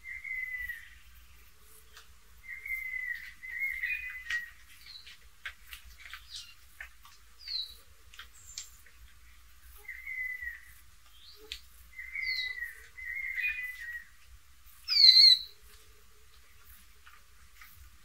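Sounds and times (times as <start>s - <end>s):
bird chirps and clicks: 1.9s - 9.2s, 9.9s - 14.0s
slurred bird whistles: 14.9s - 15.5s.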